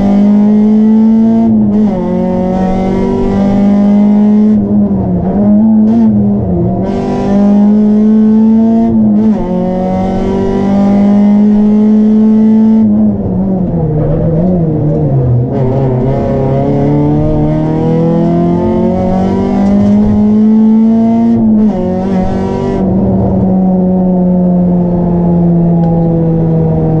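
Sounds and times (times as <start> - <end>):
car engine revving in cabin: 0.0 - 27.0.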